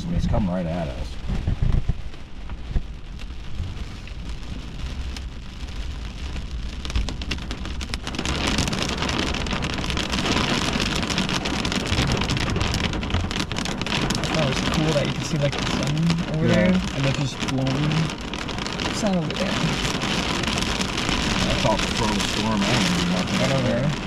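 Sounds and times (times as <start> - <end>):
heavy rain hitting a car: 0.0 - 24.0.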